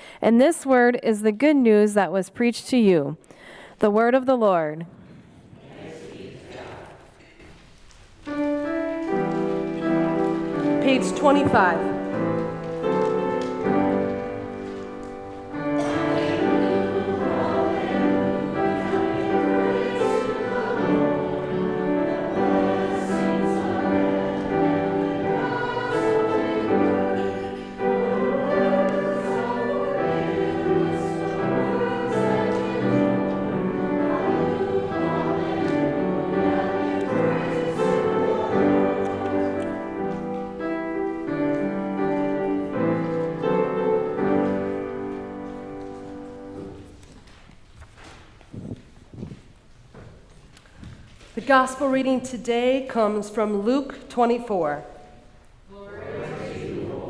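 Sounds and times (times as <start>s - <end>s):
congregation singing a hymn: 5.2s - 7.5s, 8.3s - 47.0s, 54.8s - 57.0s
instrumental accompaniment: 8.2s - 47.5s.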